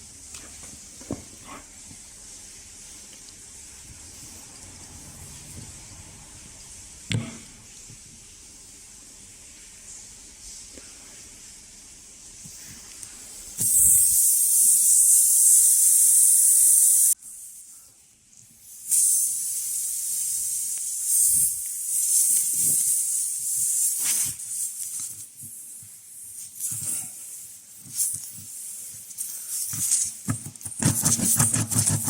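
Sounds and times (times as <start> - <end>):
pressurised air hissing: 12.5 - 17.7, 18.6 - 25.1.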